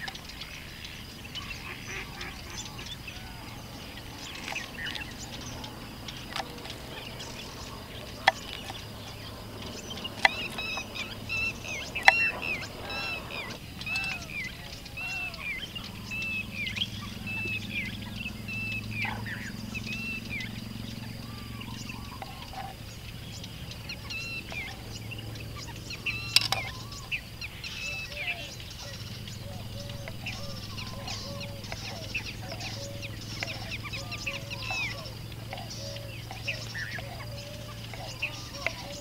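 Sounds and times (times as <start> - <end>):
birds chirping: 0.0 - 39.0
low steady hum: 0.0 - 39.0.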